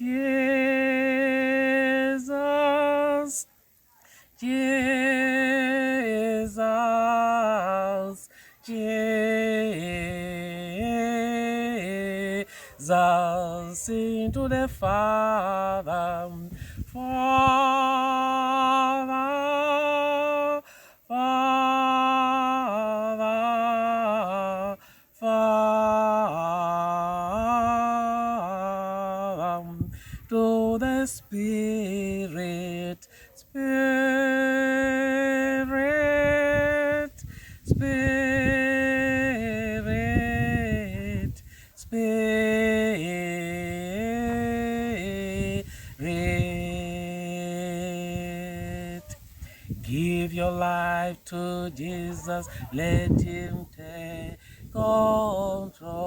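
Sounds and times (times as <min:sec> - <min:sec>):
person singing worship chorus: 0:00.0 - 0:56.0
singer breathing: 0:04.0 - 0:04.4, 0:08.3 - 0:08.6, 0:12.4 - 0:12.8, 0:16.5 - 0:16.9, 0:20.6 - 0:21.1, 0:24.8 - 0:25.2, 0:29.9 - 0:30.3, 0:37.2 - 0:37.7, 0:41.4 - 0:41.8, 0:45.6 - 0:46.0, 0:49.2 - 0:49.8, 0:54.4 - 0:54.7.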